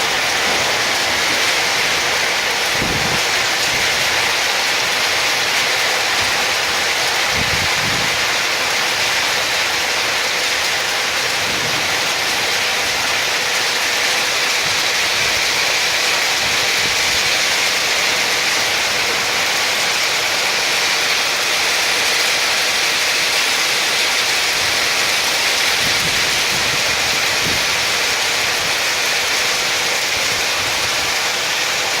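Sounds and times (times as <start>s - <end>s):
hail falling heavily: 0.0s - 32.0s.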